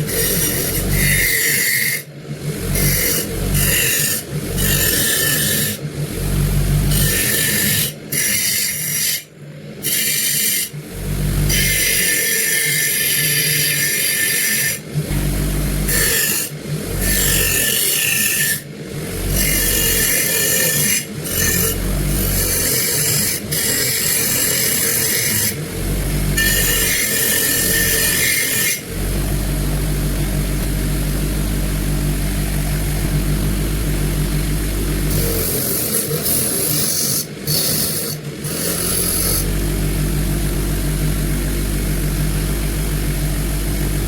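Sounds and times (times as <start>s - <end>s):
power tool abrading metal: 0.0s - 44.0s
low motor hum: 2.1s - 8.2s, 10.8s - 11.9s, 14.8s - 17.9s, 18.7s - 44.0s.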